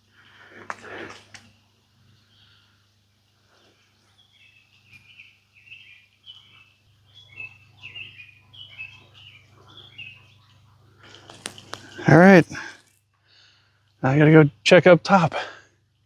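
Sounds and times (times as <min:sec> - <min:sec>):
bird chirping song: 0:01.4 - 0:12.2.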